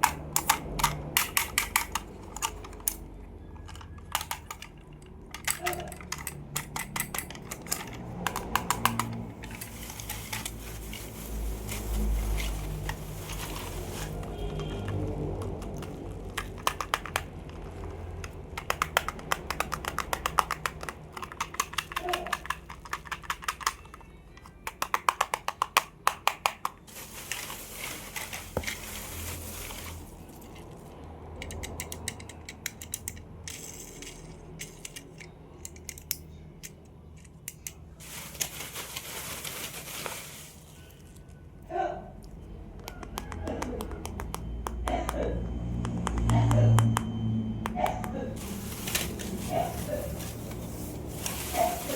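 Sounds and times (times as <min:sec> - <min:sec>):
plastic toys clicking and rattling: 0:00.0 - 0:41.2, 0:47.7 - 0:51.9
packaging rustling: 0:08.0 - 0:18.4, 0:26.9 - 0:31.0, 0:38.0 - 0:41.4, 0:48.4 - 0:51.9.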